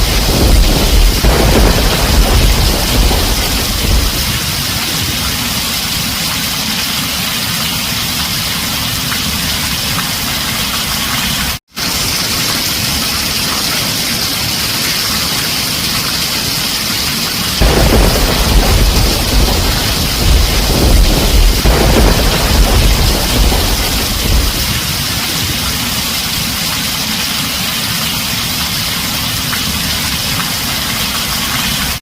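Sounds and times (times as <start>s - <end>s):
low thunder rumbling: 0.0s - 6.2s, 17.6s - 26.6s
heavy rain on a tin roof: 0.0s - 32.0s.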